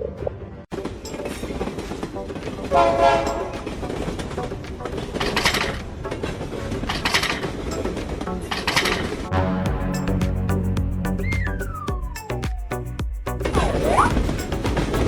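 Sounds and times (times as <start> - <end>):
train horn blast: 2.7 - 3.8.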